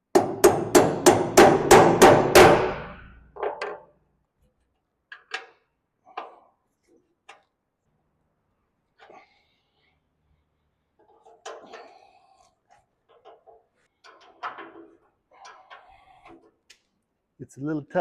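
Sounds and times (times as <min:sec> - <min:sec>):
hammer tapping a bolt: 0:00.1 - 0:02.8.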